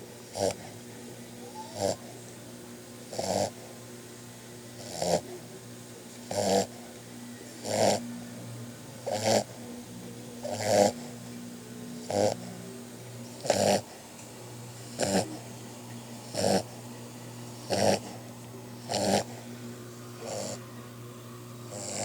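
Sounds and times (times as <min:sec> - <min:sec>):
puppy snoring: 0:00.0 - 0:00.8, 0:01.5 - 0:02.3, 0:03.1 - 0:03.8, 0:04.7 - 0:08.2, 0:09.0 - 0:09.8, 0:10.4 - 0:11.2, 0:12.0 - 0:14.0, 0:14.7 - 0:19.5, 0:20.2 - 0:20.8, 0:21.7 - 0:22.0.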